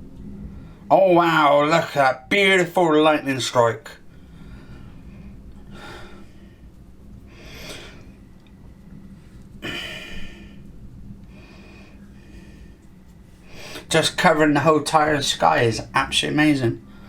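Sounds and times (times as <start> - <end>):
low hum: 0.0 - 17.0
man breathing and sniffing: 4.0 - 13.9.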